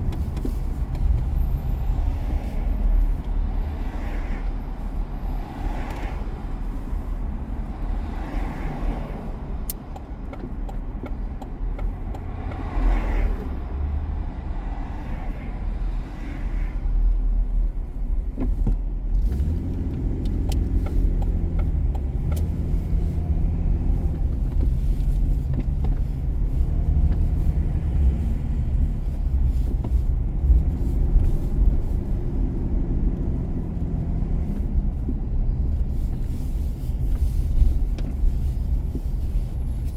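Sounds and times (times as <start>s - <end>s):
car engine hum: 0.0s - 39.9s
low road rumble: 0.0s - 39.9s.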